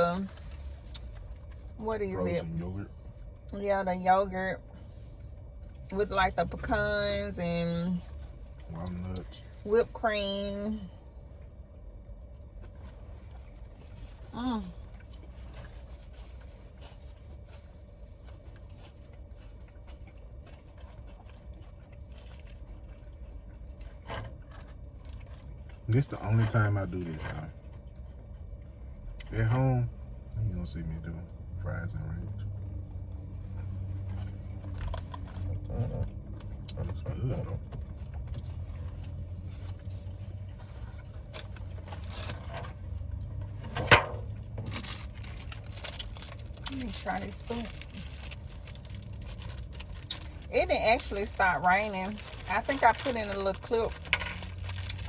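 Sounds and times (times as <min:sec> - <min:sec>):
car engine idling: 0:00.0 - 0:17.7, 0:23.4 - 0:55.0
steady low hum: 0:00.0 - 0:55.0
chewing: 0:12.2 - 0:29.3, 0:32.9 - 0:42.4.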